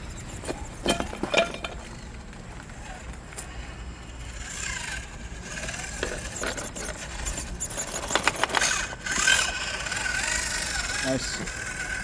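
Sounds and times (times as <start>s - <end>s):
electric motor whining: 2.7s - 12.0s.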